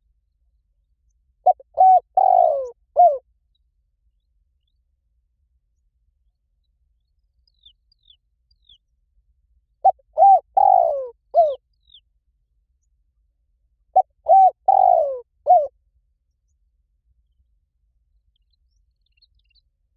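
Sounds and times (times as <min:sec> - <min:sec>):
dove cooing: 0:01.4 - 0:03.2, 0:09.8 - 0:11.6, 0:14.0 - 0:15.7
small bird chirping: 0:07.0 - 0:09.0, 0:09.8 - 0:12.1, 0:18.2 - 0:19.7.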